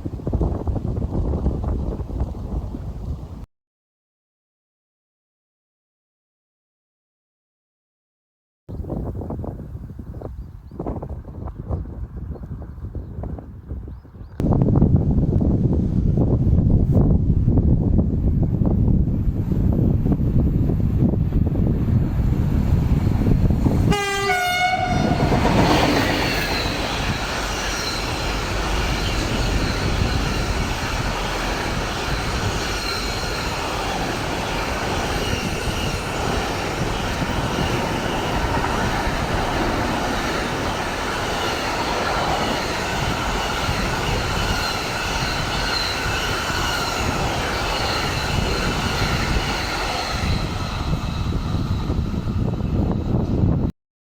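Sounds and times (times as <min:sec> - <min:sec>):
train horn: 0:23.8 - 0:25.9
freight wagons rumbling: 0:25.0 - 0:51.0.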